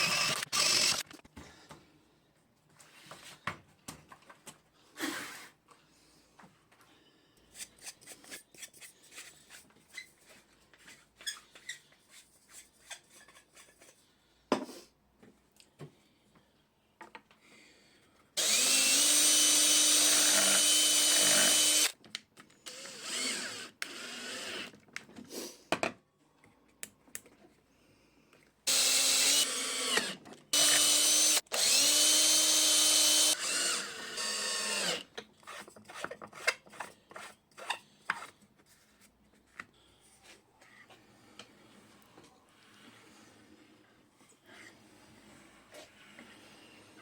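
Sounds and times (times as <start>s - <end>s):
electric drill whining: 0.0s - 1.1s, 18.4s - 22.0s, 22.7s - 24.7s, 28.7s - 35.1s.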